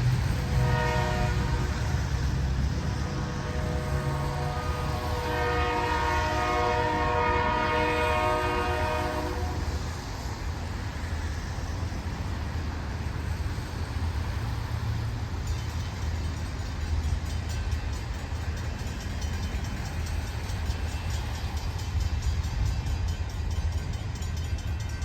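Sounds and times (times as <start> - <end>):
train rumbling past: 0.0 - 25.0
train horn chord: 0.4 - 9.7.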